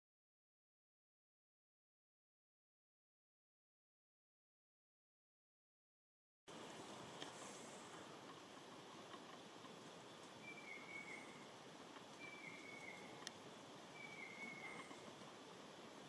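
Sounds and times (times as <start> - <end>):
low hiss of ambience: 6.5 - 16.0
bird whistled calls: 10.4 - 11.4, 12.2 - 13.2, 13.9 - 15.0.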